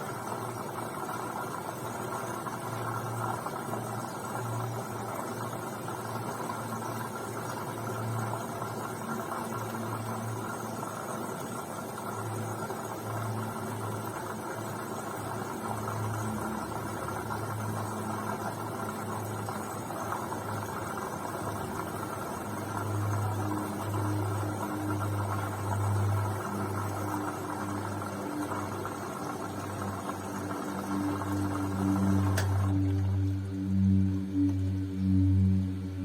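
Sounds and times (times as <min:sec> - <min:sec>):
washing machine motor hum: 0:00.0 - 0:36.0.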